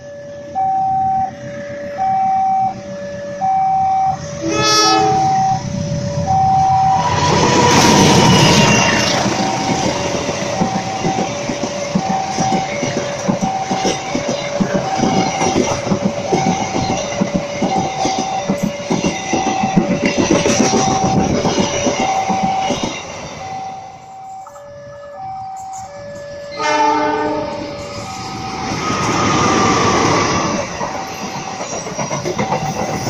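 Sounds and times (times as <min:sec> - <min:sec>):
train horn blast: 0:04.3 - 0:09.2, 0:24.8 - 0:27.9
train wheels clacking over joints: 0:07.3 - 0:23.4, 0:28.5 - 0:33.0.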